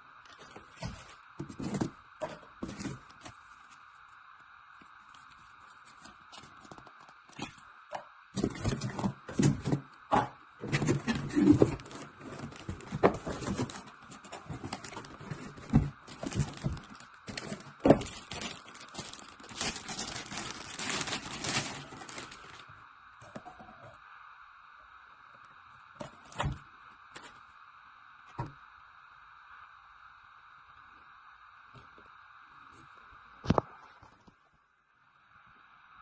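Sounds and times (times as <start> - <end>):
knocks and scrapes of cardboard: 0.4 - 3.4, 8.4 - 19.2
plastic wrap crinkling and tearing: 10.6 - 22.7.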